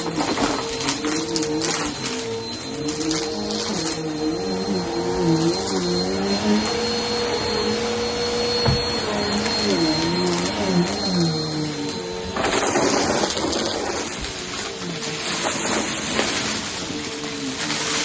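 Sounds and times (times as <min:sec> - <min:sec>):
vacuum cleaner on carpet: 0:00.0 - 0:18.0
knock: 0:08.6 - 0:08.9.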